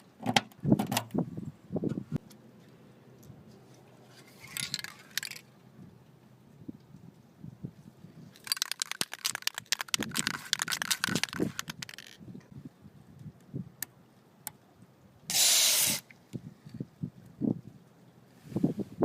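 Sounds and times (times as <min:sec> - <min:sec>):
spray can ball rattling: 0:04.3 - 0:05.4, 0:08.4 - 0:12.2
aerosol spray burst: 0:15.3 - 0:16.0.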